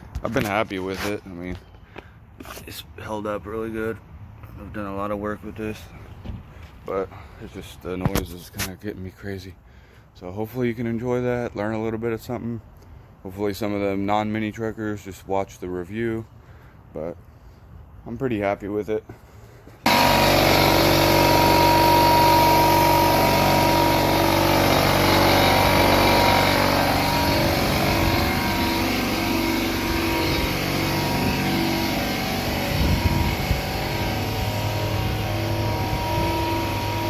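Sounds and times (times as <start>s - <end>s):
air compressor motor droning: 19.8s - 37.0s
thin whine: 19.9s - 37.0s.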